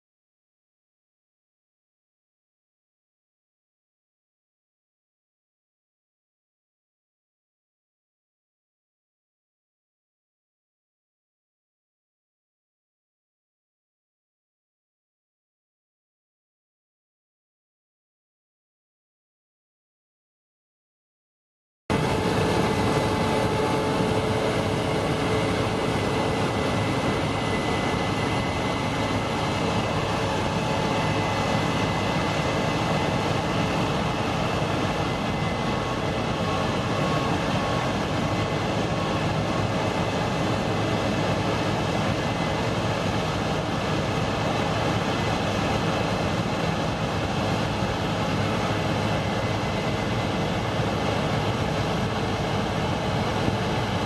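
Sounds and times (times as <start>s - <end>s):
combine harvester engine drone: 21.9s - 54.0s.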